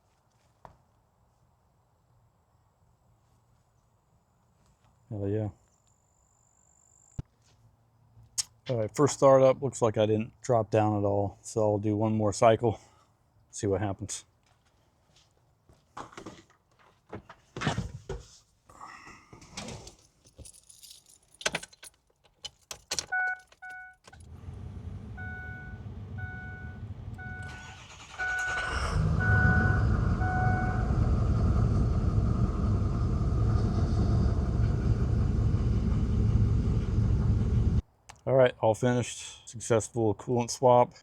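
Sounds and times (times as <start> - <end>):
keys jangling: 19.8 - 24.2
diesel engine starting and idling: 24.2 - 37.8
warning chime beeping: 25.2 - 30.9.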